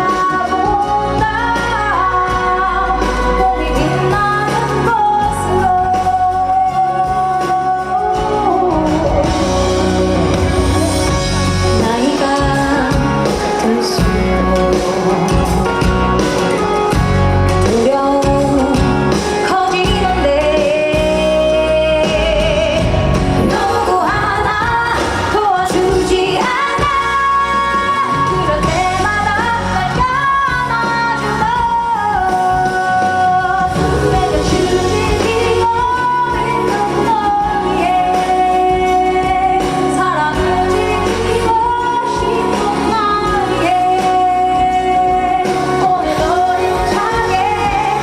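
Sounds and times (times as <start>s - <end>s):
woman singing pop live: 0.0s - 48.0s.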